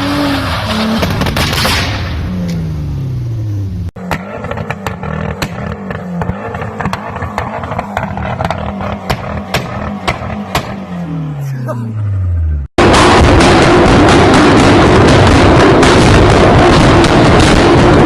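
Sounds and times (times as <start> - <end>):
exhaust pops and bangs: 0.8 - 2.2, 4.0 - 10.8, 12.8 - 18.0
car engine revving down: 2.0 - 18.0.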